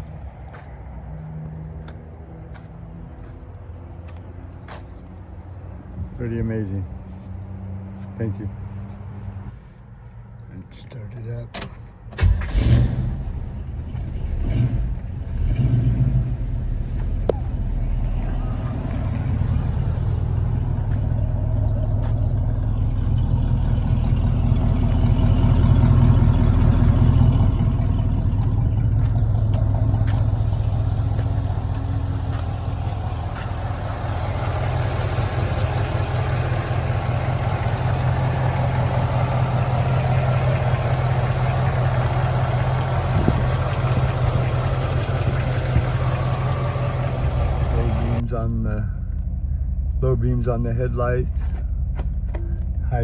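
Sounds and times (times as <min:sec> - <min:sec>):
car engine idling: 0:13.1 - 0:53.0.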